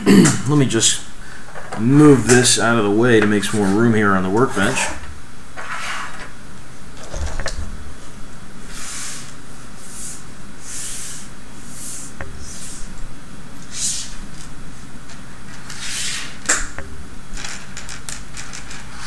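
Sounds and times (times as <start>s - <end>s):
plastic parts rustling on workbench: 17.3s - 19.0s.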